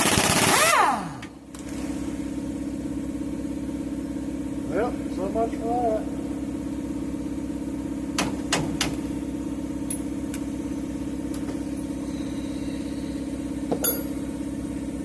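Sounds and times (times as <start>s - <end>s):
motor running: 9.0s - 15.0s
sharp metal clinks: 13.7s - 14.3s.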